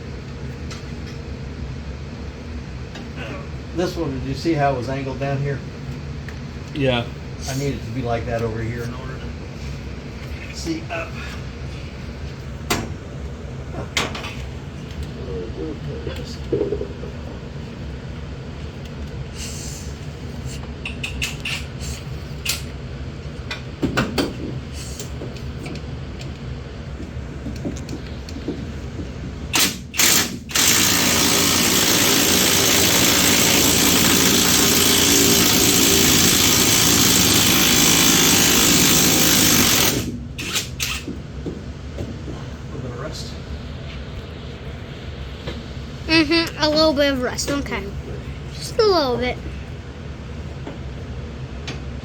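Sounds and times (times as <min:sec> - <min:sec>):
power tool running: 0:29.6 - 0:41.0.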